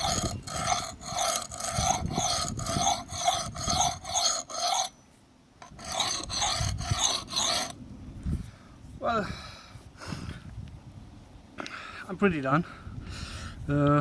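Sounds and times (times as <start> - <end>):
axe blade scraping on concrete: 0.0 - 5.0, 5.6 - 7.8.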